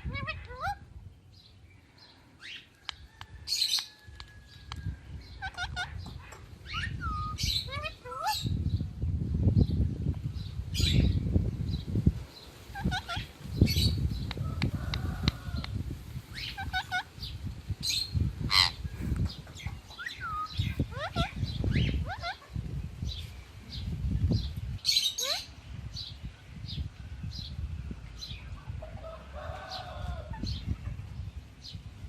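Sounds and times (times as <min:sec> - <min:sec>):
parrots chirping and whistling: 0:05.3 - 0:08.5, 0:12.7 - 0:14.0, 0:16.3 - 0:17.2, 0:17.8 - 0:18.8, 0:19.5 - 0:22.6, 0:24.8 - 0:25.5.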